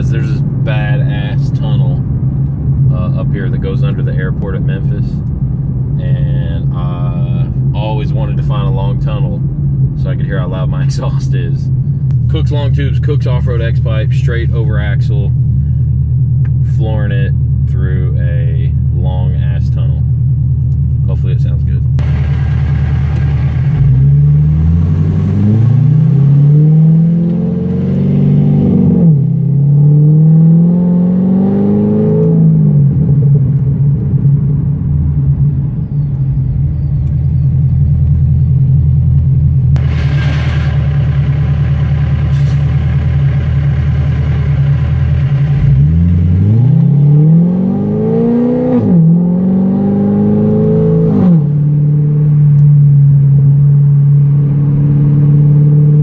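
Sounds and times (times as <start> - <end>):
sports car engine revving: 22.0 - 56.0.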